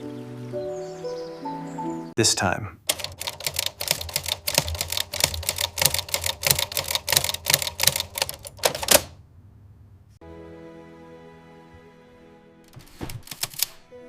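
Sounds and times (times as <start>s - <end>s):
rapid regular clicking: 2.9s - 9.2s, 13.2s - 13.8s.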